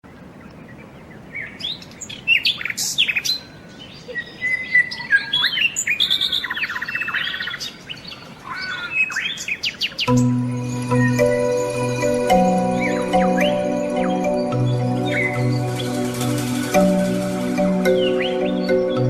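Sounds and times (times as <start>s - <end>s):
birds chirping: 0.1s - 19.0s
faint steady hiss: 9.6s - 19.0s.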